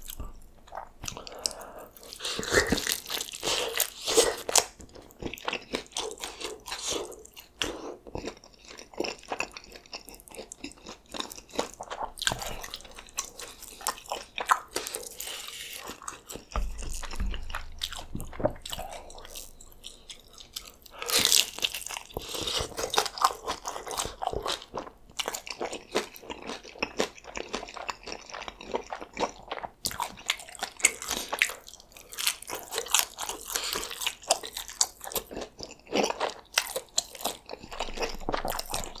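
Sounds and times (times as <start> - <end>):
biting and chewing crunchy food: 0.0 - 39.0
dull low thump: 16.5 - 19.9.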